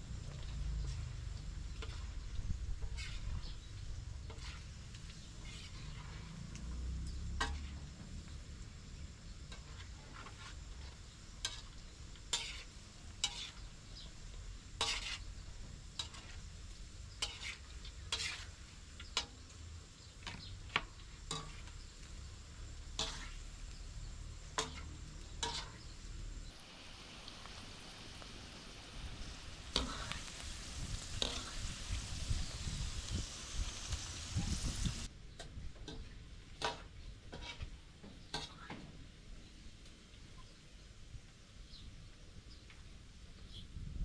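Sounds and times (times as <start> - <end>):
food sizzling in a pan: 0.0 - 35.1, 36.6 - 37.6
utensil scraping and knocking pan: 14.8 - 15.3, 24.6 - 25.9.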